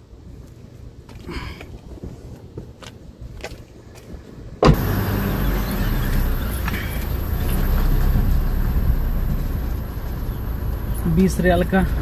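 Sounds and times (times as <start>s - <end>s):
loud thump: 4.6s - 5.1s
car engine running: 4.6s - 12.0s.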